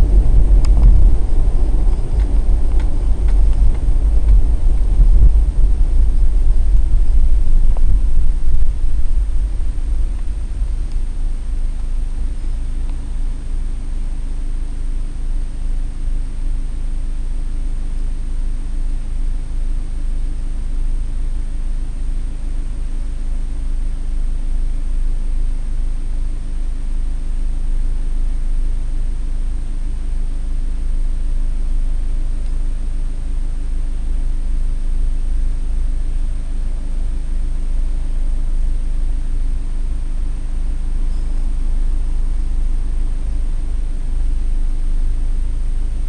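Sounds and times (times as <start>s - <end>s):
car engine idling: 0.0s - 23.8s
high steady whine: 0.0s - 46.0s.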